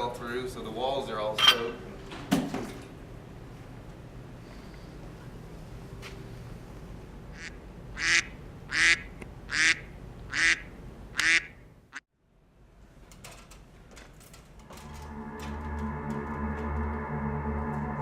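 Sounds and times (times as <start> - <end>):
duck quacking: 7.4 - 11.6
sustained musical tone: 14.7 - 18.0.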